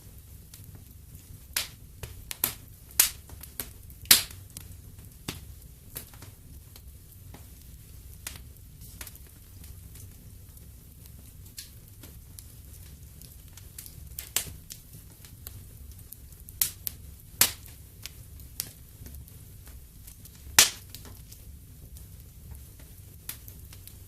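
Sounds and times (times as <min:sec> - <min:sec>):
wood fire rumbling and crackling: 0:00.0 - 0:24.0
loud sharp pops: 0:20.6 - 0:21.2.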